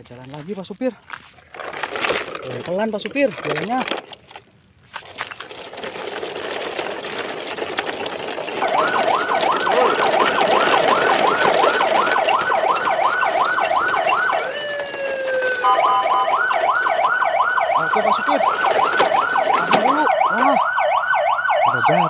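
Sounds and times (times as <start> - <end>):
rough rattling noise: 1.5 - 20.0
fast warbling electronic siren: 8.6 - 22.0.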